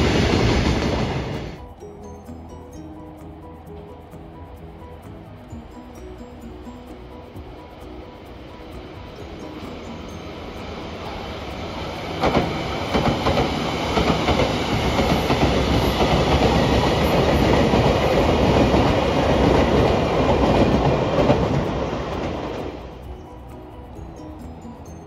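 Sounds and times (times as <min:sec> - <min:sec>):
electric train passing: 0:00.0 - 0:25.0
train wheels clacking: 0:09.8 - 0:23.0.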